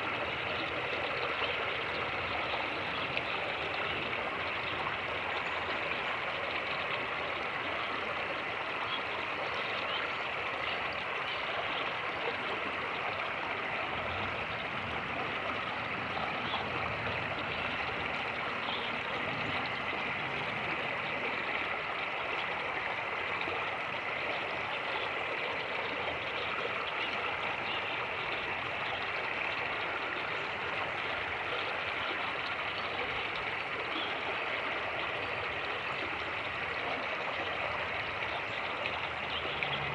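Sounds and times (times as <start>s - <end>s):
creek rushing over rapids: 11.9s - 39.9s.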